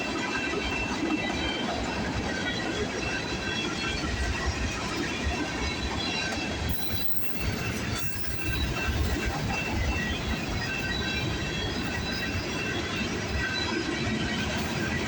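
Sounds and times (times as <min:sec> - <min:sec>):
train wheels rolling on rails: 0:00.0 - 0:15.0
high-pitched wheel squeals: 0:06.7 - 0:09.8.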